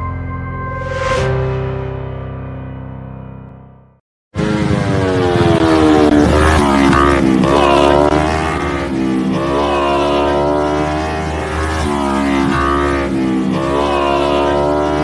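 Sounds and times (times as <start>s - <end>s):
motorcycle engine revving: 4.4s - 15.0s.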